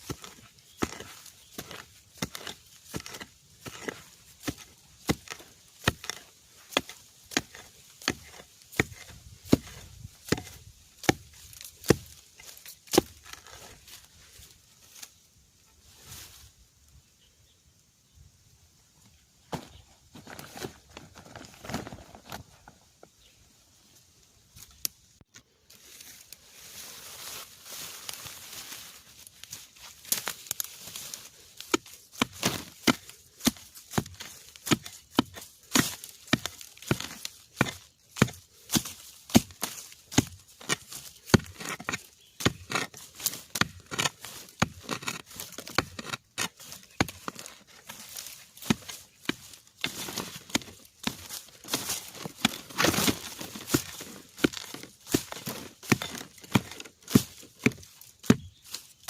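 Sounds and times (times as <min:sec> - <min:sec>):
tool chopping bamboo: 0:00.0 - 0:13.9, 0:30.1 - 0:59.0
vegetation rustling and crackling: 0:23.9 - 0:59.0.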